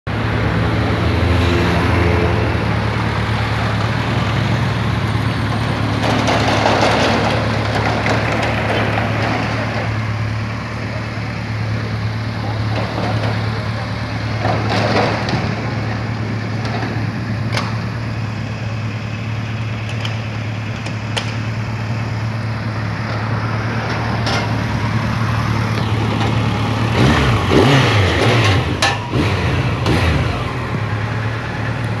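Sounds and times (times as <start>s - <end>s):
motorcycle engine idling: 10.0s - 14.5s, 23.7s - 32.0s.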